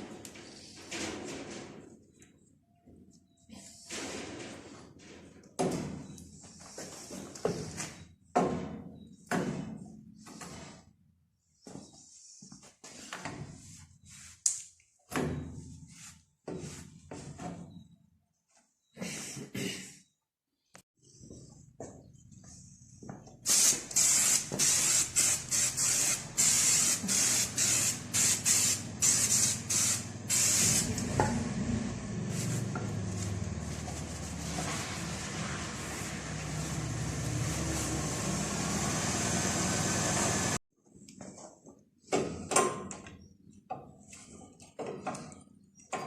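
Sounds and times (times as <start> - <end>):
pressurised spray hissing: 23.5 - 31.0.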